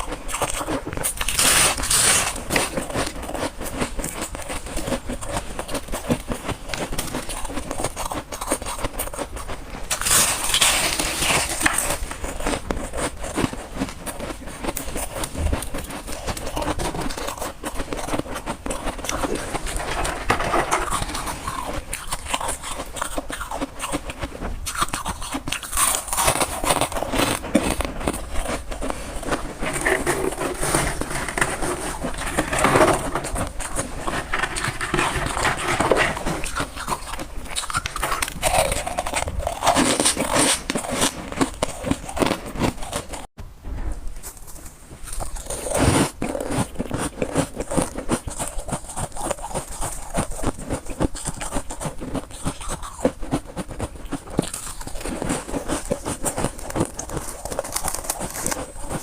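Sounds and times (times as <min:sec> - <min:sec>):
chewing crunchy ice: 0:00.0 - 0:43.3, 0:45.0 - 0:59.0.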